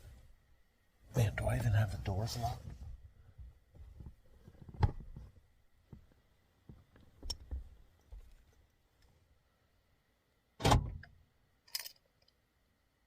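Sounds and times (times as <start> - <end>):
small clicks and knocks: 5.9 - 9.1.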